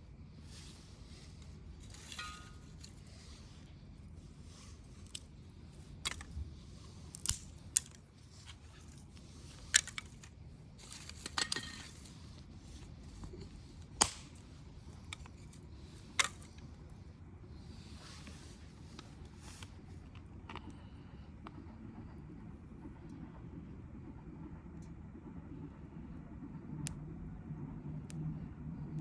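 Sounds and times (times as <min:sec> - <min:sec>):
wood fire crackling: 0:00.0 - 0:21.6.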